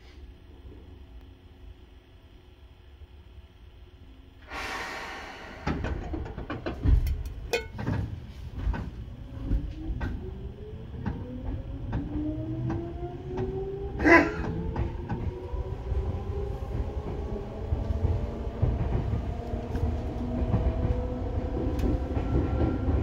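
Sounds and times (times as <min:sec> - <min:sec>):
air hiss: 0:04.4 - 0:05.9
clunks and knocks under train: 0:05.5 - 0:13.6, 0:16.7 - 0:23.0.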